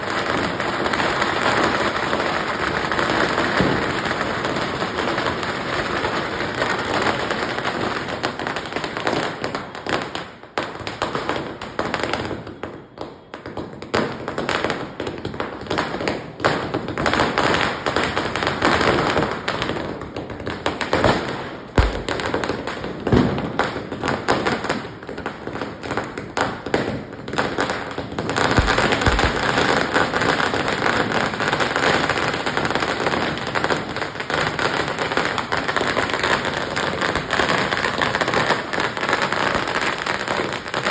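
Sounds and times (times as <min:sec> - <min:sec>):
firecrackers crackling: 0:00.0 - 0:12.8, 0:15.9 - 0:40.9
deep firecracker bangs: 0:21.8 - 0:22.6, 0:28.5 - 0:30.3.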